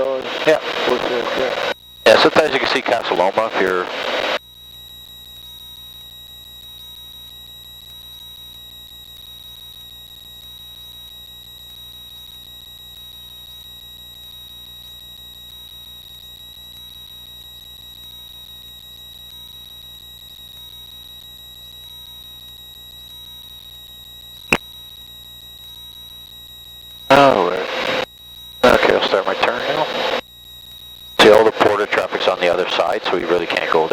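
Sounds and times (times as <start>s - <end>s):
high-pitched electrical whine: 0.0s - 33.9s
muffled aircraft engine drone: 28.6s - 30.2s.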